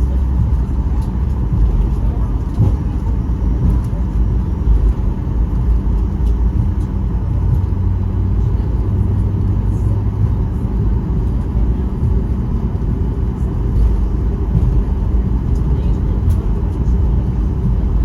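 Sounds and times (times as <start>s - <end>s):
jet airliner cabin rumble: 0.0s - 18.0s.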